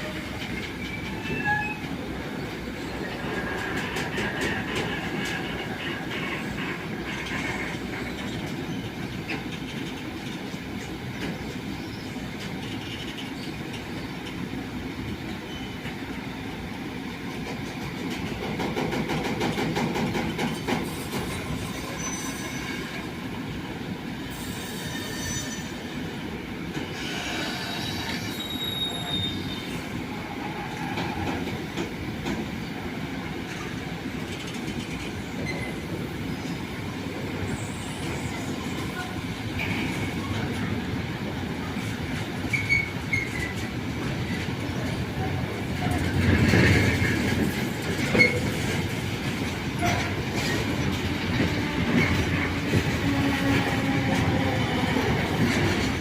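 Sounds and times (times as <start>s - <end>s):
train wheels rolling on rails: 0.0s - 56.0s
high-pitched wheel squeals: 0.8s - 1.9s, 27.0s - 29.8s.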